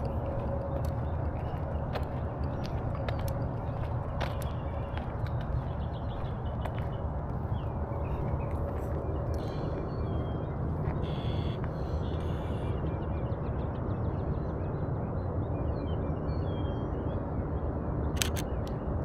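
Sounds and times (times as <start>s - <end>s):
small birds chirping: 0.0s - 14.3s
steady low rumble: 0.0s - 19.0s
sharp clicks: 18.2s - 18.8s.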